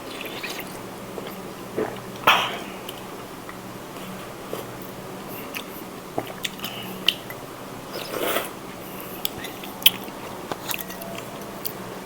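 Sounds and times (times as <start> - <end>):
person chewing noodles: 0.0 - 11.8.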